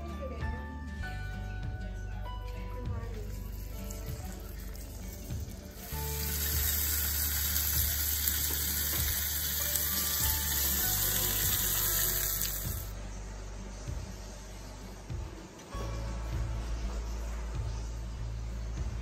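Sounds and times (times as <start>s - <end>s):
oil sizzling in a frying pan: 3.6s - 12.9s.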